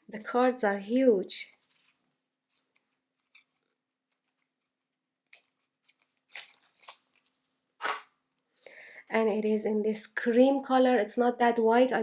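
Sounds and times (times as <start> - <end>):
cards and paper rustling: 1.4 - 8.1.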